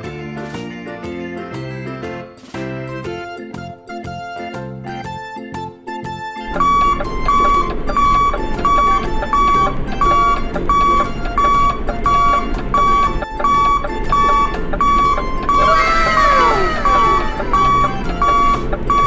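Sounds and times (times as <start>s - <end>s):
electronic beeps: 6.4s - 19.0s.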